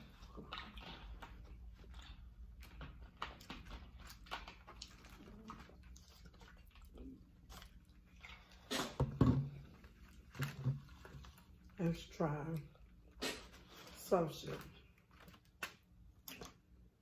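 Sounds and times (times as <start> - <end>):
chewing and mouth noises: 0.0 - 9.0, 14.9 - 16.9.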